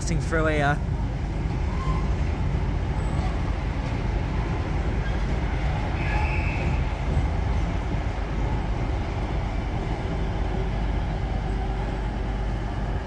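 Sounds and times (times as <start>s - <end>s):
tank wagons rumbling on rails: 0.0s - 13.0s
faint high squeal: 5.9s - 6.9s.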